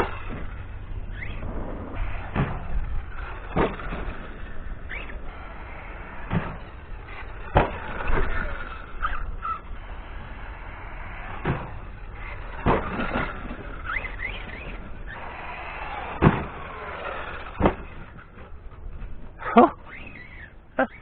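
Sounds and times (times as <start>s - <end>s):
electric motor whining: 0.0s - 21.0s
steady rushing noise: 0.0s - 21.0s
toy truck landing thumps: 1.2s - 5.2s, 6.1s - 9.6s, 11.2s - 18.6s.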